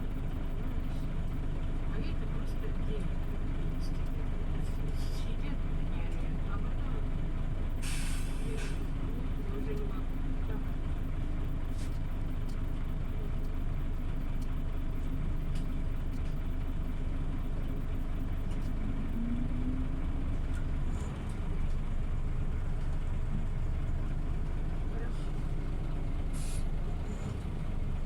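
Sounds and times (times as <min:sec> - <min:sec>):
bus engine drone: 0:00.0 - 0:28.0.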